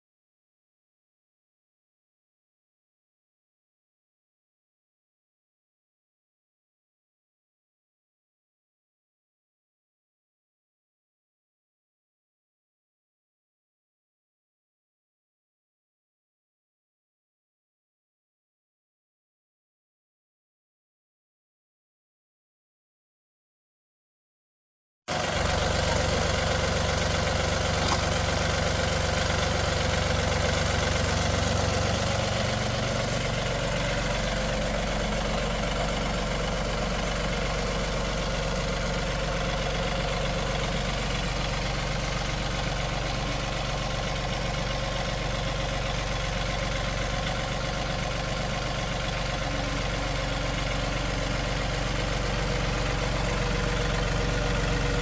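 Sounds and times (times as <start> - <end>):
tractor engine running: 25.1 - 55.0.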